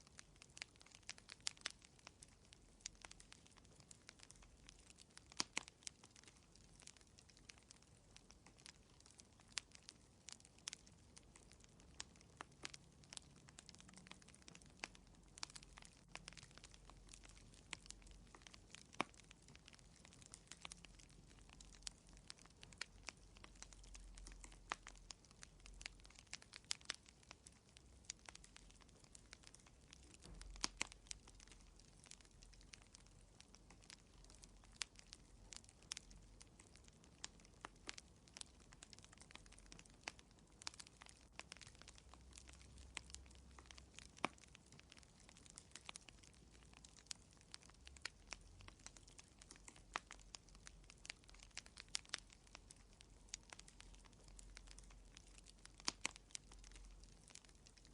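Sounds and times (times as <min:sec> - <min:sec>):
faint low rumble: 0:00.0 - 0:57.9
wood fire crackling: 0:00.0 - 0:57.9.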